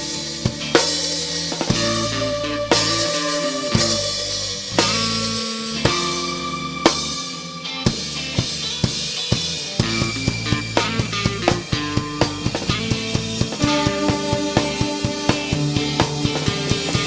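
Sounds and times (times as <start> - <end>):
rock band playing: 0.0 - 17.0
drum kit strikes: 8.4 - 17.0
cymbal wash: 9.8 - 17.0.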